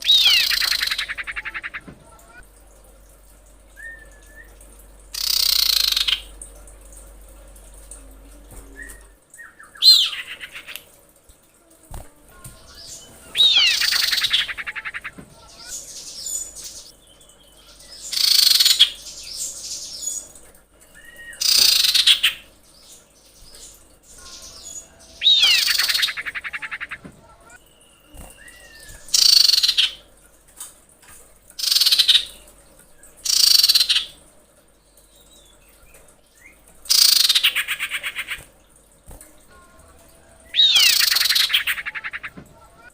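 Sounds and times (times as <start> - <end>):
faint whistled bird notes: 3.7 - 4.6, 8.6 - 10.3
harsh falling bird call: 12.6 - 16.9, 24.2 - 27.0, 40.4 - 42.9.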